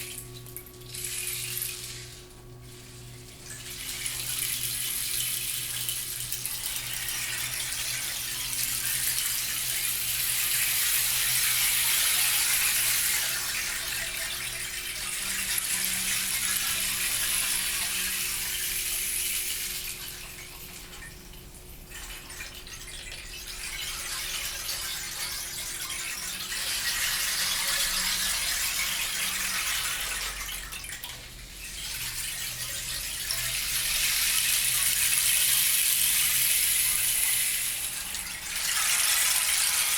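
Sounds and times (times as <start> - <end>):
rolling beads percussion wash: 23.4 - 39.9.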